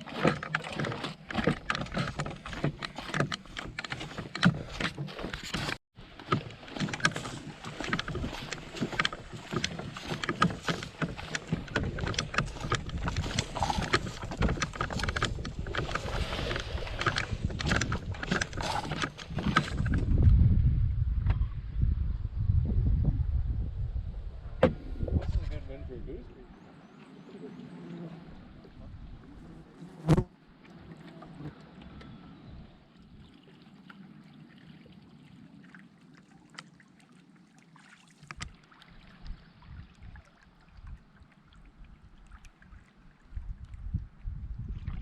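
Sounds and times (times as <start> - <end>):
paddle strokes in water: 0.0 - 20.3, 26.4 - 45.0
wind buffeting the microphone: 7.9 - 26.5, 43.3 - 45.0
water trickling and dripping: 32.8 - 45.0.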